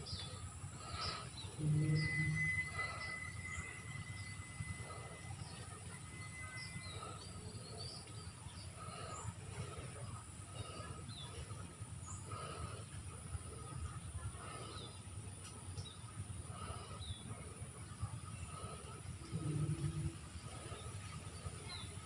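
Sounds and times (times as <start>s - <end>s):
birds chirping: 0.0s - 22.0s
high insect drone: 0.7s - 7.6s
thin steady whistle: 1.0s - 8.2s
brief low hum: 1.0s - 8.6s, 19.2s - 21.8s.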